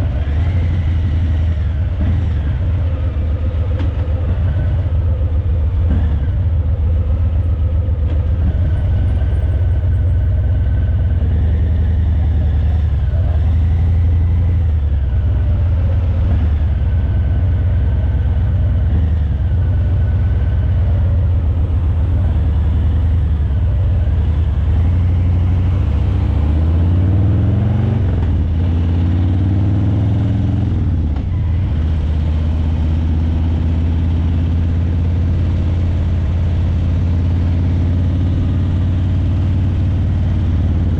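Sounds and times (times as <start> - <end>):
motorcycle engine rumbling: 0.0 - 40.9.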